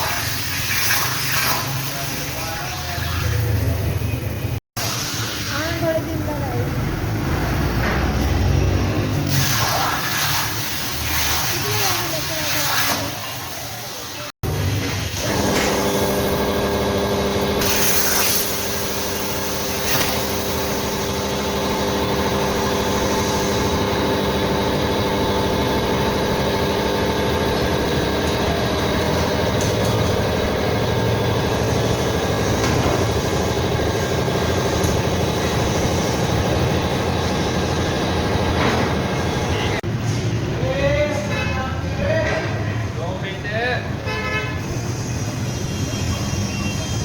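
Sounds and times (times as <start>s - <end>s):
machinery humming: 13.9s - 40.5s.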